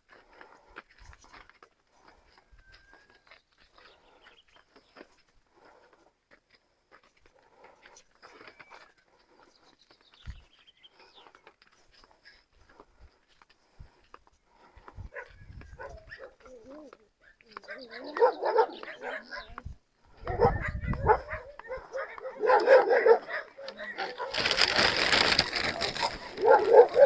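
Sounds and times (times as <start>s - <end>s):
dogs chewing treats: 24.0s - 27.0s.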